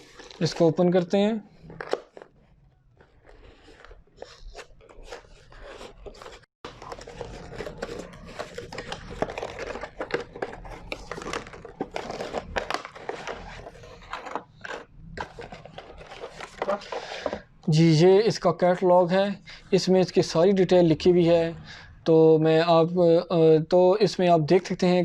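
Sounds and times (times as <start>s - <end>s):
paper and plastic crinkling: 0.0s - 17.4s.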